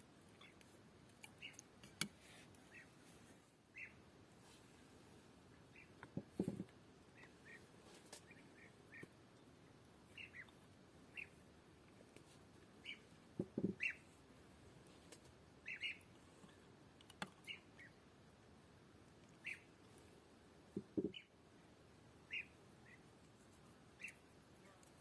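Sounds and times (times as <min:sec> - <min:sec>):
birds chirping: 0:00.3 - 0:02.0, 0:03.7 - 0:04.0, 0:05.6 - 0:09.2, 0:10.1 - 0:11.4, 0:12.8 - 0:14.2, 0:15.6 - 0:16.6, 0:19.4 - 0:19.8, 0:22.2 - 0:23.1.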